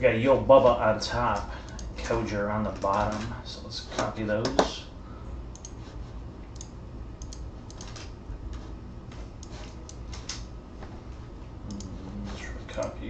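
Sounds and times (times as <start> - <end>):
low steady hum: 0.0 - 13.0
keyboard and mouse clicks: 5.5 - 5.8, 6.5 - 10.5, 11.6 - 12.0.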